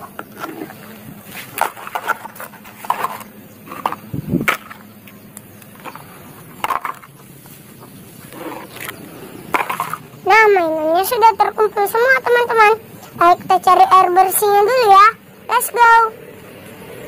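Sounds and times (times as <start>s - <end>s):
plastic toys clattering in crate: 1.4s - 4.8s, 5.8s - 7.2s, 9.5s - 10.1s.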